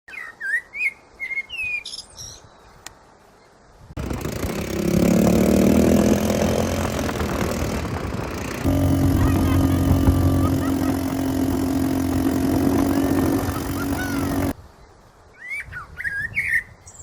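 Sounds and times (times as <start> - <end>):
birds chirping: 6.0 - 14.5.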